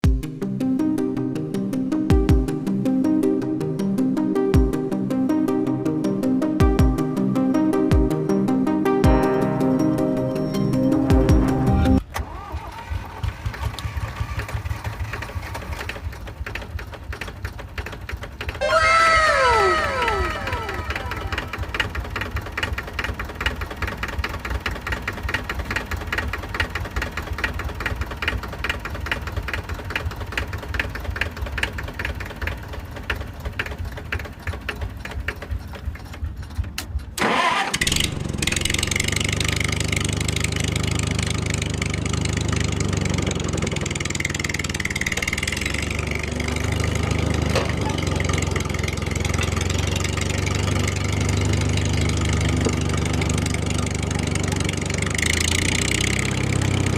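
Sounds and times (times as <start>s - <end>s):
small engine chugging: 12.1s - 56.9s.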